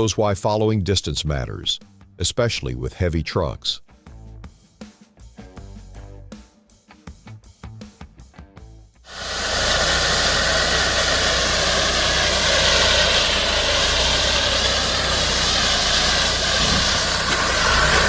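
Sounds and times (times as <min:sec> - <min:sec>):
background music: 0:01.2 - 0:09.0
low engine rumble: 0:09.1 - 0:18.0
road and wind noise: 0:09.1 - 0:18.0.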